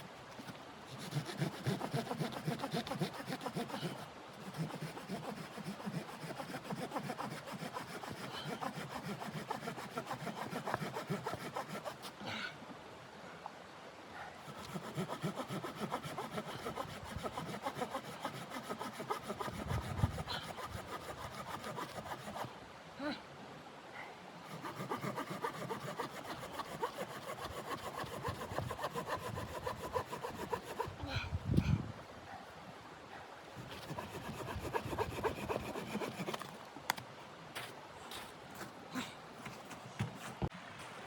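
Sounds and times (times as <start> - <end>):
hand saw cutting wood: 0.4 - 12.1, 14.4 - 22.5, 24.5 - 31.0, 33.6 - 36.6.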